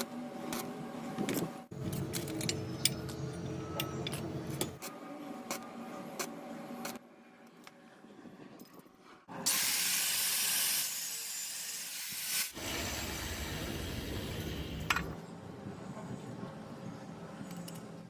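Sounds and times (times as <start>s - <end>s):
electric welding arc hissing: 9.5s - 14.8s.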